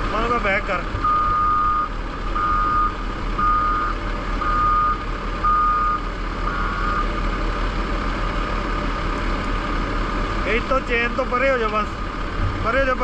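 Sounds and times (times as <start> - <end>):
truck engine running: 0.0 - 13.0
truck reversing alarm beeping: 1.0 - 7.2.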